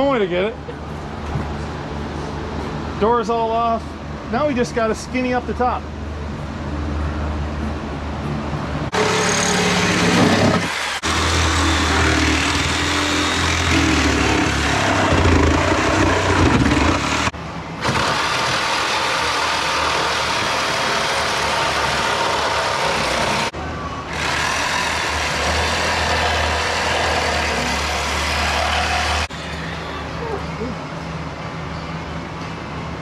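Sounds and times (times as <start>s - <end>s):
power tools cutting sheet metal: 8.9s - 23.5s, 24.1s - 29.6s.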